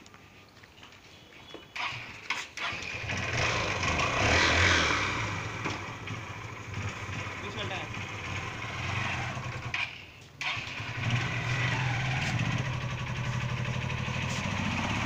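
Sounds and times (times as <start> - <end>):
motorcycle engine starting and revving: 1.7 - 15.0.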